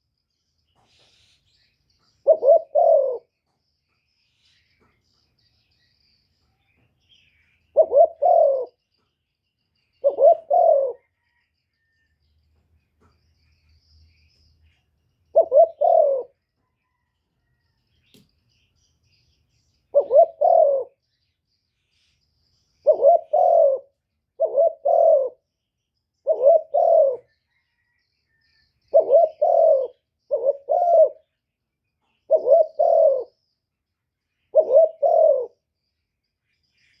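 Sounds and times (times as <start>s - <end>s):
dove cooing: 2.0s - 3.4s, 7.7s - 8.8s, 10.0s - 11.4s, 15.3s - 17.1s, 19.9s - 21.0s, 22.8s - 25.5s, 26.2s - 27.9s, 28.8s - 31.4s, 32.0s - 33.4s, 34.5s - 35.6s.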